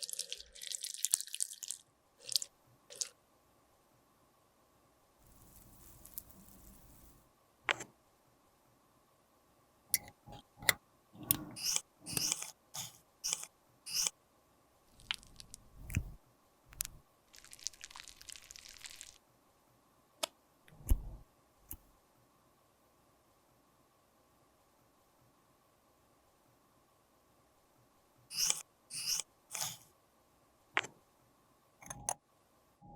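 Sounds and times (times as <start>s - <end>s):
soft hissy scraping: 5.2s - 7.3s.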